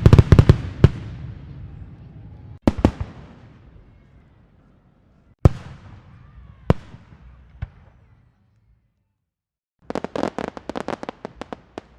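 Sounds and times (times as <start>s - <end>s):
fireworks bursting with echoing rumble: 0.0s - 4.6s, 5.4s - 8.3s, 9.8s - 11.9s
firecracker pops crackling: 9.8s - 11.9s.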